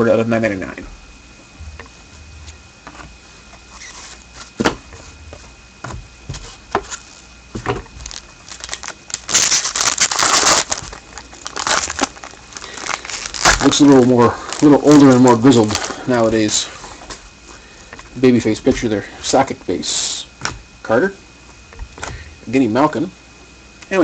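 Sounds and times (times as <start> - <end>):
card pack wrapper crinkling: 8.0 - 16.6.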